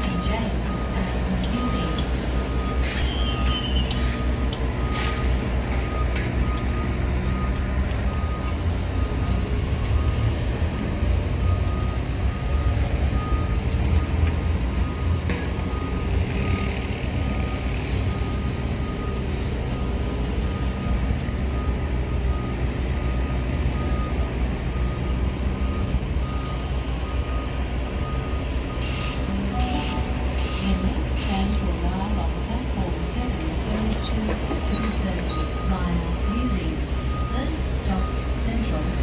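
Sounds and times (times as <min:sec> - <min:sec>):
high tone beeping: 0:00.0 - 0:05.2, 0:28.0 - 0:31.7
electric train rumbling: 0:00.0 - 0:39.0.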